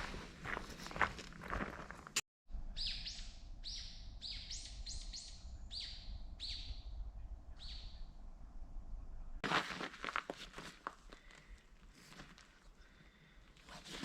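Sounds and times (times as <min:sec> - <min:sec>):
bird chirping with echo: 0:02.7 - 0:08.2.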